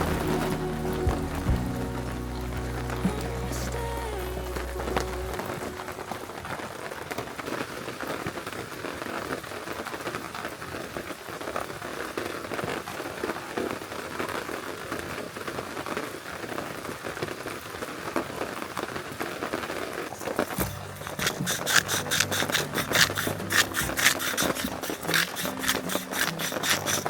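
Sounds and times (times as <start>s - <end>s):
heavy rain on a tarp: 5.4s - 21.0s.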